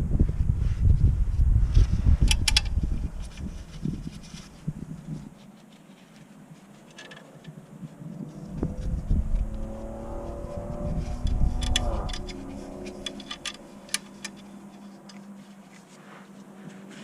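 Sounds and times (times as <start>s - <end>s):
sharp metallic clicks and taps: 11.2s - 14.4s.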